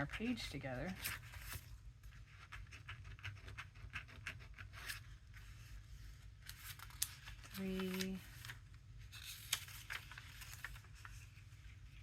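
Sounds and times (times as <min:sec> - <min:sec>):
paper rustling: 0:00.0 - 0:12.0.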